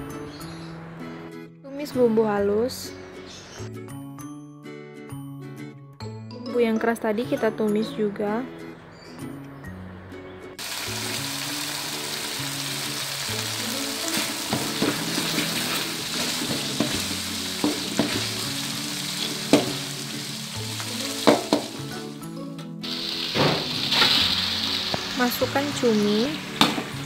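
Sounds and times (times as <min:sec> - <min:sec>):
paste sizzling in oil: 0:10.6 - 0:22.1, 0:22.8 - 0:27.0
metal spatula scraping wok: 0:14.1 - 0:20.3, 0:23.6 - 0:24.4.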